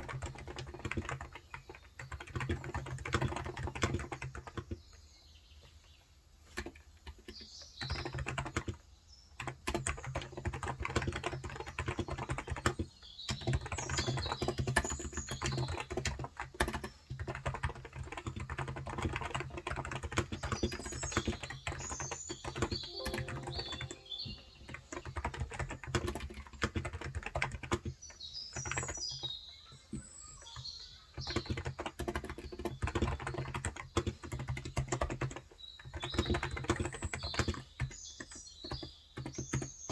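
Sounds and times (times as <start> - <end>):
keyboard typing: 0.0 - 4.7, 6.6 - 8.8, 9.4 - 28.0, 31.2 - 37.6
birds chirping: 20.4 - 25.6.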